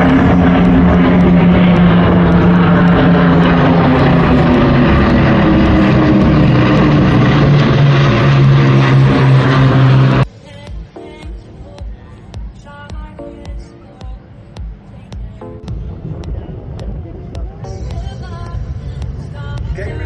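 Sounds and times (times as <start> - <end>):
propeller aircraft engine droning: 0.0 - 20.0.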